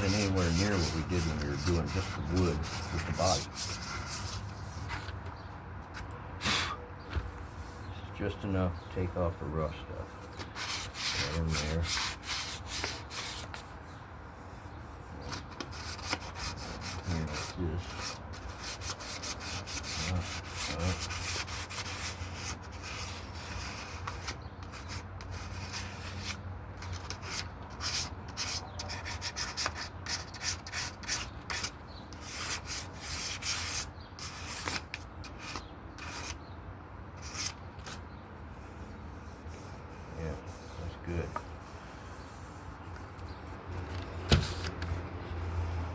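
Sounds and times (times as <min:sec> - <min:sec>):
sandpaper rubbing on wood: 0:00.0 - 0:04.8, 0:10.4 - 0:13.6, 0:15.7 - 0:26.4.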